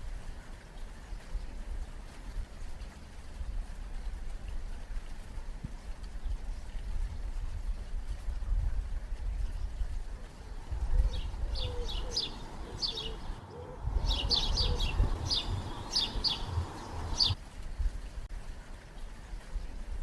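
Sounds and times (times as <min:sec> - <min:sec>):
small birds chirping: 0:09.2 - 0:17.4.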